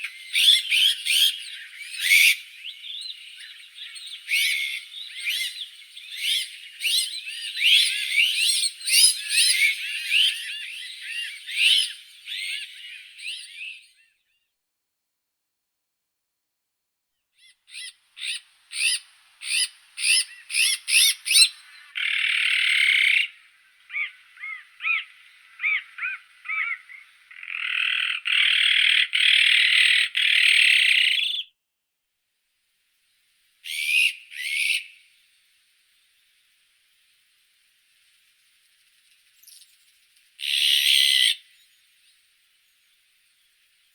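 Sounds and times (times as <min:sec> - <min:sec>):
magpie calling: 0:00.0 - 0:13.6, 0:17.4 - 0:31.4, 0:33.6 - 0:35.0, 0:40.4 - 0:41.5.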